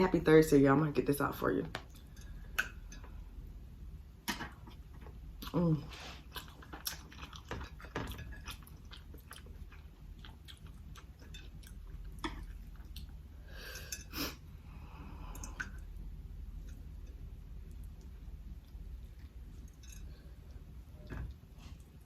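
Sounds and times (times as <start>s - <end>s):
chewing and mouth sounds: 4.5s - 13.3s.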